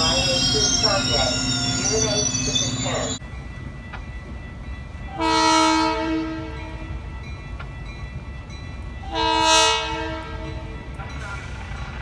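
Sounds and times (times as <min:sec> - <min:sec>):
passing train rumble: 0:00.0 - 0:12.0
locomotive air horn blasts: 0:05.2 - 0:06.6, 0:09.1 - 0:10.6.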